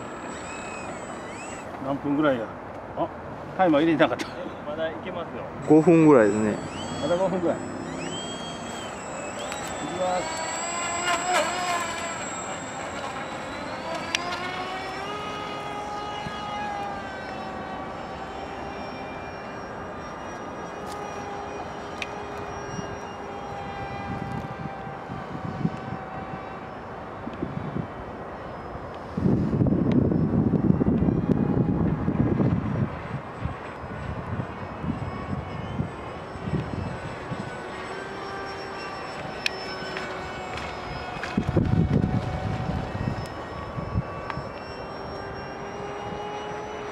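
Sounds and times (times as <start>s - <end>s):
model plane motor whining: 0.0s - 2.9s, 4.7s - 46.9s
wind buffeting microphone: 22.8s - 26.6s, 29.0s - 37.6s, 40.1s - 44.5s.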